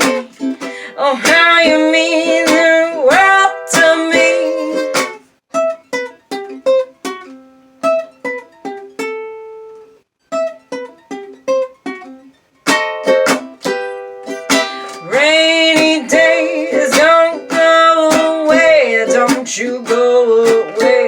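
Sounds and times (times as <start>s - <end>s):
plucked string instrument: 0.0s - 21.0s.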